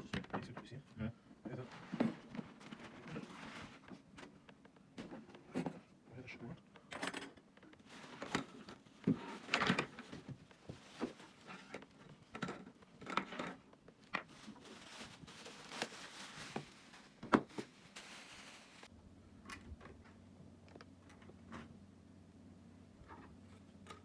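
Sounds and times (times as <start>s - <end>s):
objects being handled: 6.8s - 18.9s.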